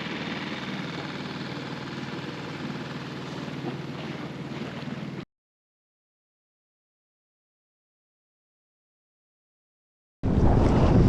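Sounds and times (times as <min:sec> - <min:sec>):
outboard motor running: 0:00.0 - 0:05.2
water noise: 0:00.0 - 0:05.2, 0:10.2 - 0:11.0
wind buffeting microphone: 0:10.2 - 0:11.0.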